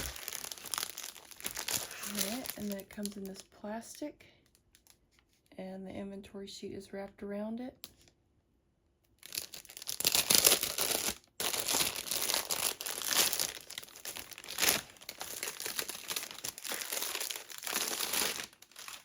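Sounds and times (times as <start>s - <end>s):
plastic packaging crinkling: 0.0s - 3.5s, 9.2s - 19.0s.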